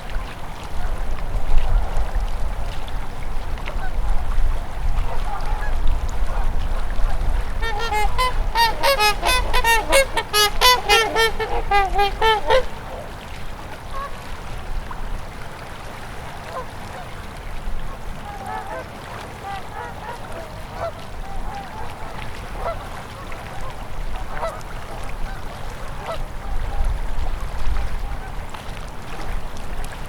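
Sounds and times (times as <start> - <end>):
geese honking: 7.6 - 13.2
river flowing: 7.6 - 21.2.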